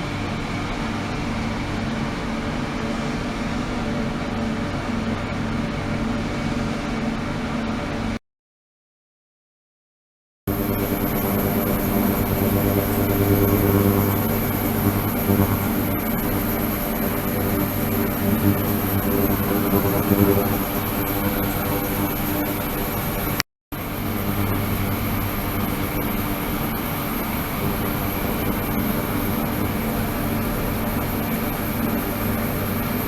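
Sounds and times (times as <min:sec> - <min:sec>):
steady machine hum: 0:10.5 - 0:33.0.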